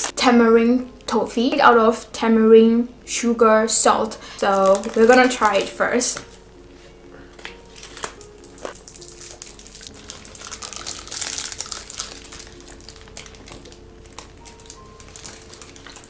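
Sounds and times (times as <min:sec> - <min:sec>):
sweet wrappers crinkling: 0:04.2 - 0:16.0.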